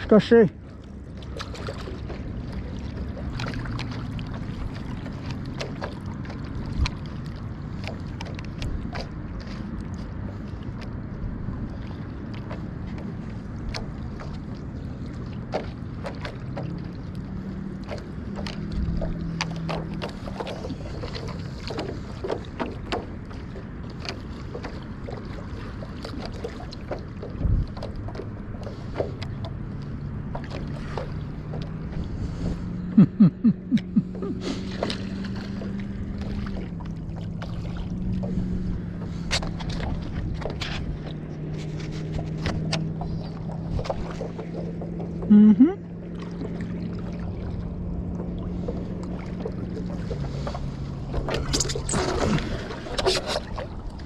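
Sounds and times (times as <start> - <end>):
light wind: 0.0 - 54.0
paddle strokes through water: 0.0 - 54.0
water drips and splashes: 0.8 - 11.0, 46.1 - 54.0
low steady hum: 28.3 - 54.0.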